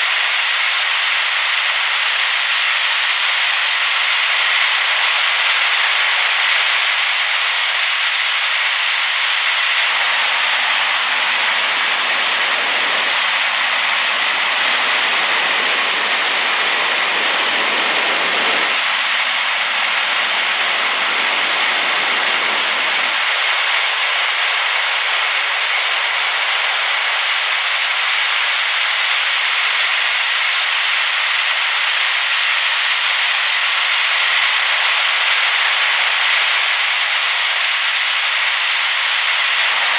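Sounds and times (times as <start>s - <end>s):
waterfall rushing: 9.8s - 27.9s, 39.5s - 39.9s.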